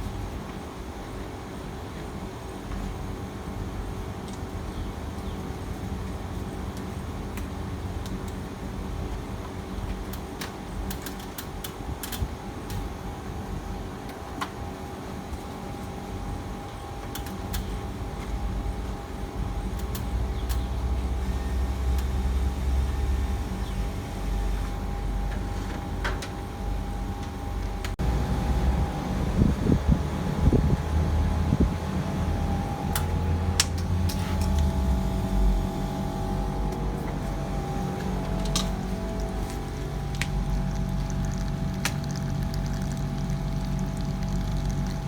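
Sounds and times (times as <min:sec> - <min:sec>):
steady machine hum: 0:11.8 - 0:45.0
low rumble: 0:27.9 - 0:45.0.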